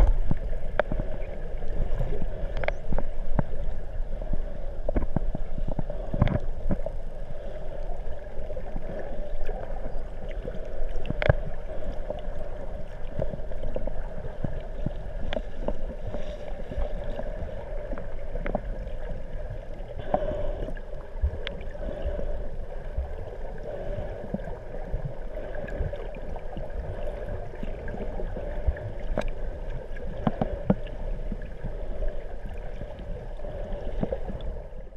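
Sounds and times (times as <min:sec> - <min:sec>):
clicks and crackles: 0:00.0 - 0:01.3, 0:02.3 - 0:03.7, 0:04.9 - 0:06.9, 0:09.4 - 0:12.2, 0:13.0 - 0:16.3, 0:17.9 - 0:18.9, 0:29.0 - 0:31.0
muffled underwater hum: 0:00.0 - 0:34.9.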